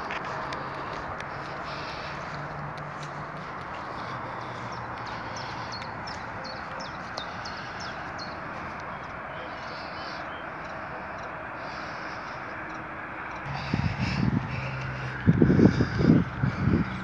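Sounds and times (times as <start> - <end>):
rushing background noise: 0.0 - 17.0.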